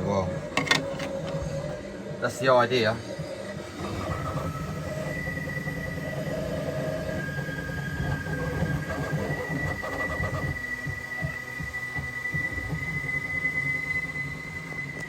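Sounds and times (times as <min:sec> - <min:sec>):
printer motor whine: 0:00.0 - 0:15.0
three d printer rumbling: 0:03.5 - 0:10.7.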